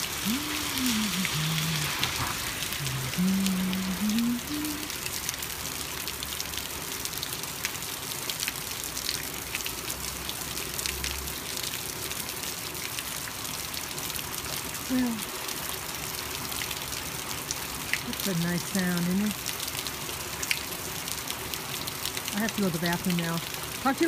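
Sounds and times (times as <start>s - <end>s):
raindrops pattering on surfaces: 0.0s - 24.0s
steady rain hiss: 0.0s - 24.0s
low tone rising in pitch: 0.2s - 4.8s.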